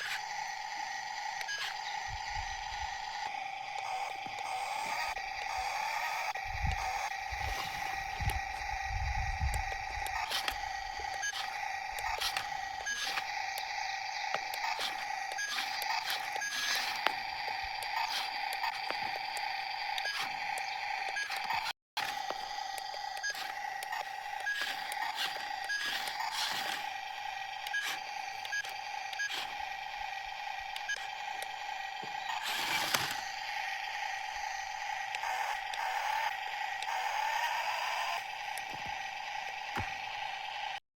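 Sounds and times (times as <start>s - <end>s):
toy electric motor whining: 0.0s - 40.8s
clicks and scrapes: 10.1s - 13.4s, 21.1s - 27.0s, 27.7s - 29.6s.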